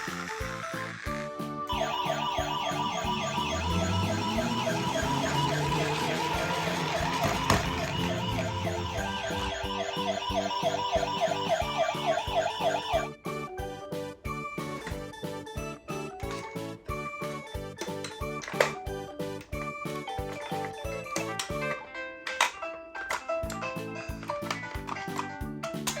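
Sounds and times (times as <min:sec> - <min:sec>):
toy siren warbling: 0:00.0 - 0:13.2.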